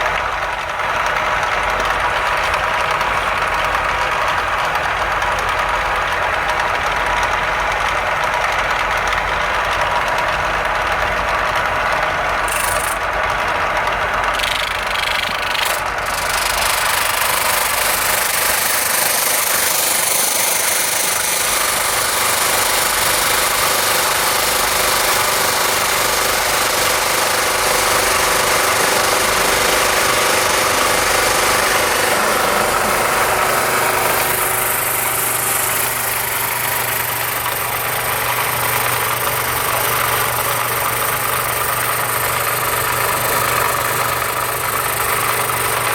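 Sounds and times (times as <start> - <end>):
electric sanding machine: 12.4 - 13.3, 14.2 - 45.9.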